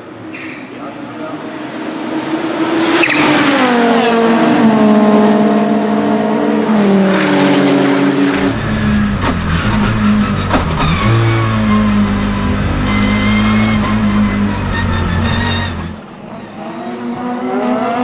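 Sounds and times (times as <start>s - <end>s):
car engine revs dropping: 7.1s - 18.0s
deep rumble: 8.4s - 16.0s.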